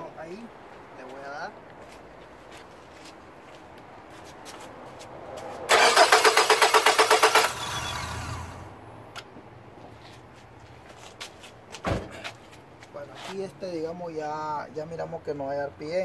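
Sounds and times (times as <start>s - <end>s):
starter cranking engine: 5.7s - 8.5s.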